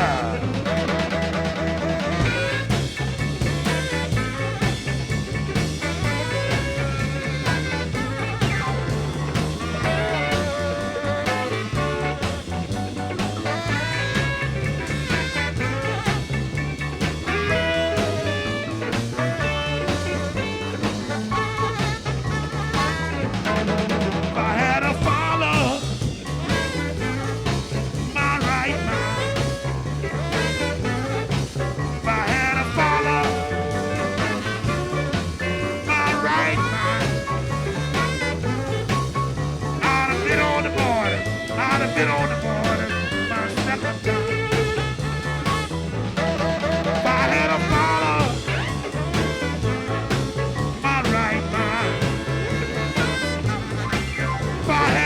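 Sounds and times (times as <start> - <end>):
electric blues band playing: 0.0 - 55.0.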